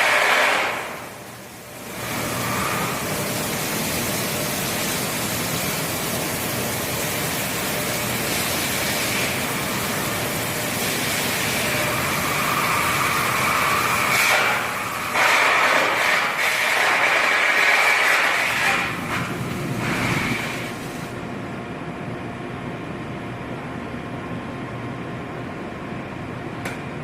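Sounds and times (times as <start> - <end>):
continuous industrial hiss: 0.0 - 21.6.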